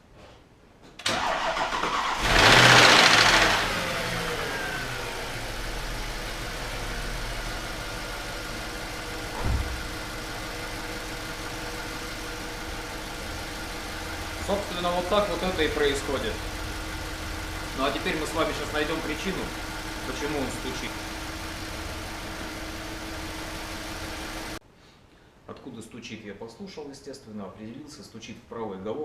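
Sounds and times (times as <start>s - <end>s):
starter motor cranking: 1.1s - 3.9s
car engine idling: 1.1s - 24.6s.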